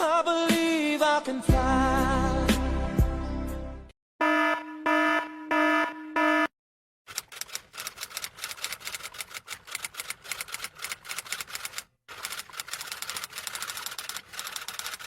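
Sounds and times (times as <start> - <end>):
keyboard typing clicks: 7.1 - 15.0.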